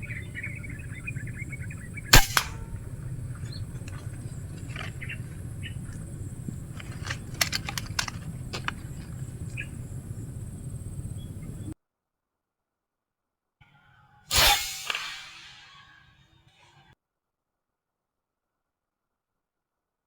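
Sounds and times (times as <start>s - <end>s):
air rifle shot: 0.0s - 11.7s, 14.3s - 15.9s
light clicks: 0.0s - 11.8s.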